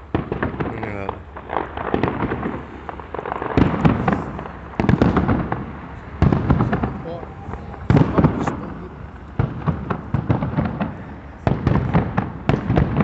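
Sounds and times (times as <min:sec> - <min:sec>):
firework crackling: 0:00.0 - 0:13.0.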